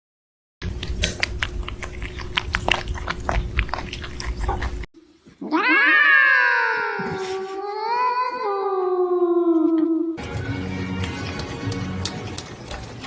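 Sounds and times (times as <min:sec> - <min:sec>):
steady hum: 0:00.6 - 0:05.4
cat meowing: 0:05.4 - 0:09.9.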